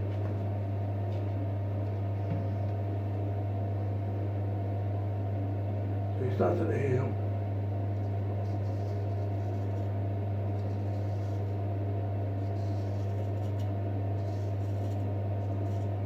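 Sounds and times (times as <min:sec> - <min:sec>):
steady low hum: 0:00.0 - 0:16.0
razor scraping through stubble: 0:08.0 - 0:11.7, 0:12.3 - 0:16.0.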